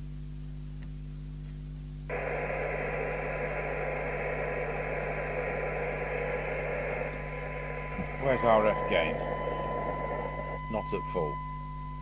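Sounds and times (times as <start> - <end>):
low mains hum: 0.0 - 12.0
radio receiver hiss: 2.1 - 11.4
thin test tone: 7.9 - 12.0.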